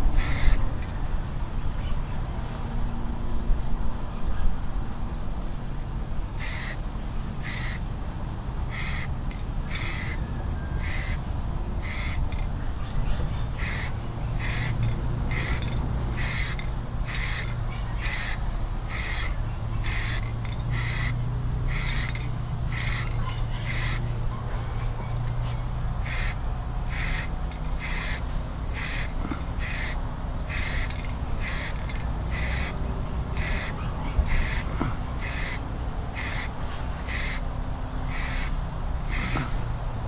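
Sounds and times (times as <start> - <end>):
spray paint hissing in bursts: 0.0 - 0.9, 6.4 - 6.8, 7.4 - 7.8, 8.7 - 10.2, 10.8 - 11.2, 11.8 - 12.5, 13.5 - 24.1, 26.0 - 39.6.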